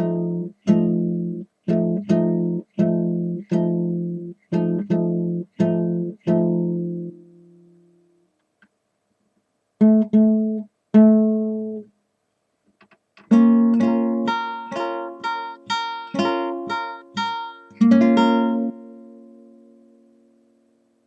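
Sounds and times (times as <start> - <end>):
acoustic guitar strumming chords: 0.0 - 8.1, 13.3 - 20.6.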